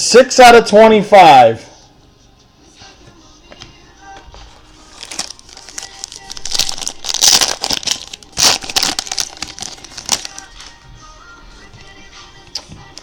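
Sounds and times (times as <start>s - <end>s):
plastic wrapping crinkling and tearing: 4.5s - 10.8s.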